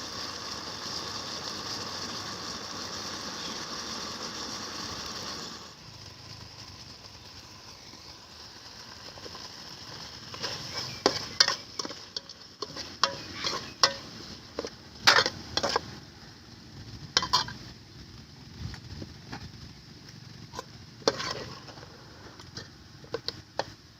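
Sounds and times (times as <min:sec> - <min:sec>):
chicken sizzling in a pan: 0:00.0 - 0:23.9
utensil scraping and clinking pan: 0:10.3 - 0:16.0, 0:17.2 - 0:17.6, 0:20.5 - 0:23.7.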